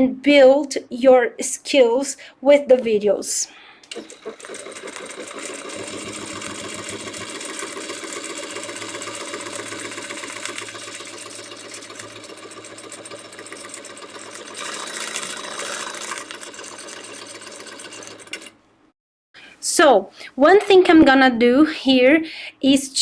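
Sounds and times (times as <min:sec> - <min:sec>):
sewing machine stitching: 0:03.9 - 0:18.6.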